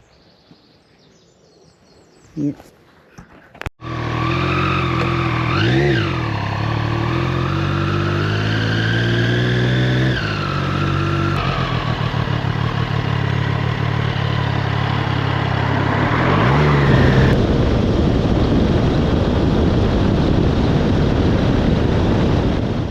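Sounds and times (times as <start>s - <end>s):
motorcycle engine running: 3.8s - 22.9s
wind rushing over microphone: 14.4s - 22.9s.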